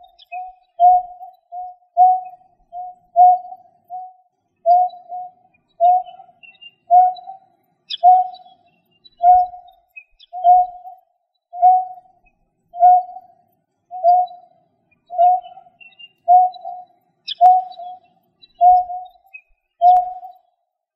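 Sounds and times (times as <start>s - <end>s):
bird call notes: 0.0s - 11.0s, 11.6s - 12.1s, 12.8s - 13.3s, 13.9s - 20.4s.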